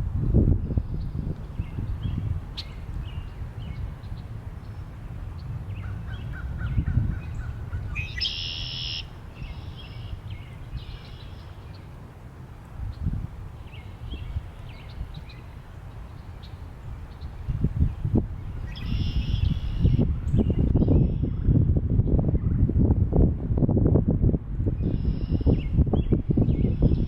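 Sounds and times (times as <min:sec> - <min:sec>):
low wind rumble: 0:00.0 - 0:27.0
birds calling: 0:01.6 - 0:11.9.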